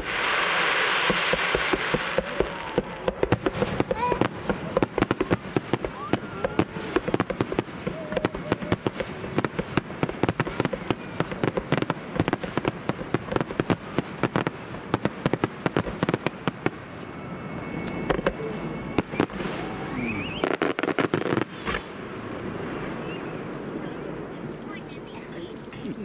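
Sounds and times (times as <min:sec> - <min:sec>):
fireworks cracking and banging: 0:00.0 - 0:22.0.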